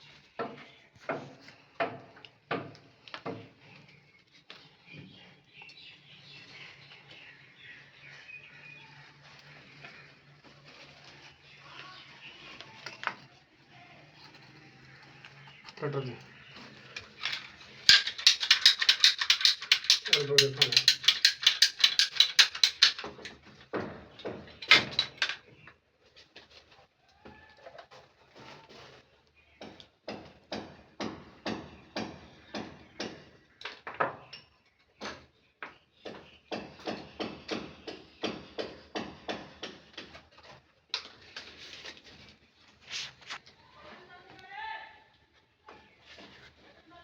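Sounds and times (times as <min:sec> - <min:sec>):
hand cutter clicking: 0:17.3 - 0:23.3.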